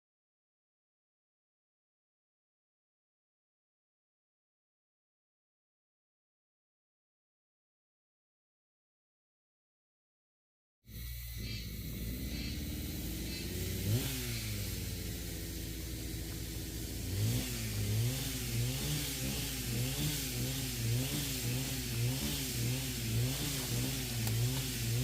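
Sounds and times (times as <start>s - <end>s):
engine revving up and down: 10.9s - 25.0s.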